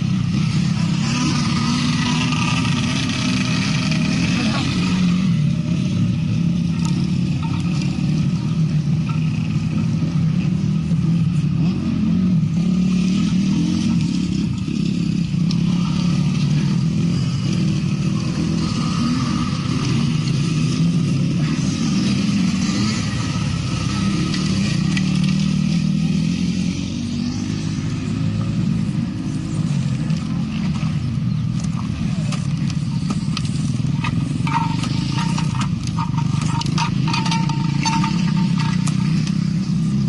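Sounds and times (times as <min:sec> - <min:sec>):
motorcycle engines revving: 0:00.0 - 0:40.0.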